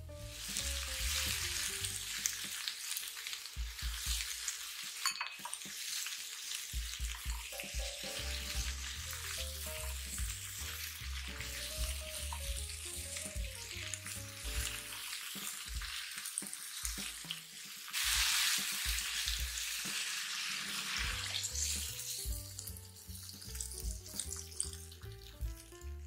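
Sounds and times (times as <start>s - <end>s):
background music with bass: 0.0s - 2.5s, 6.8s - 15.0s, 18.9s - 19.8s, 21.0s - 26.0s
vegetables sizzling in oil: 0.0s - 26.0s.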